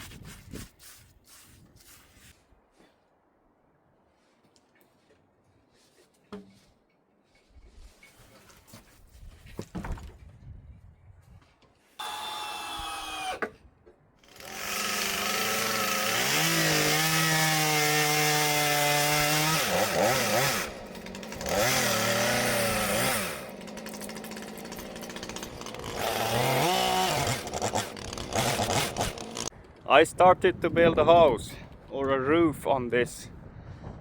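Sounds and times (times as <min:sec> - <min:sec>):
small petrol engine revving: 0:14.3 - 0:29.5.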